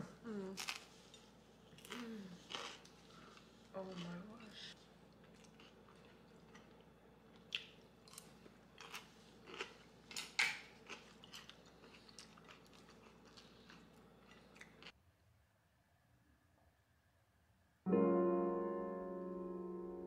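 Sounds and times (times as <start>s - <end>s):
crunchy food chewing: 1.7s - 15.0s.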